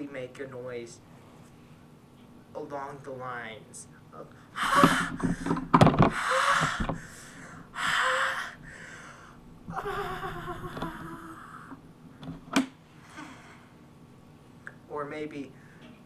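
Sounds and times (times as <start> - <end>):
breathy gasps and wheezes: 4.4 - 11.8.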